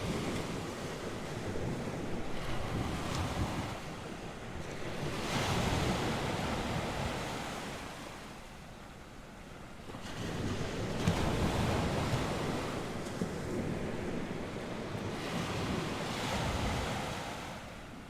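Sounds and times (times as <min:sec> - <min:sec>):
wind buffeting microphone: 0:00.0 - 0:07.5
waves breaking on shore: 0:00.0 - 0:18.0.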